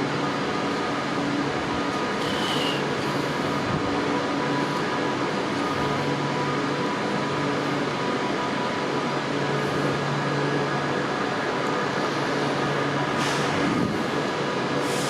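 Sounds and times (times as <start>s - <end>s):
train hum with held tones: 0.0s - 15.0s.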